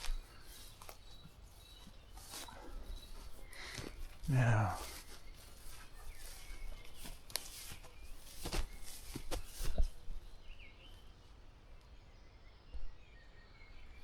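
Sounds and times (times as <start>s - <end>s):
footsteps cracking twigs: 0.0s - 10.6s
birds chirping faintly: 0.0s - 14.0s.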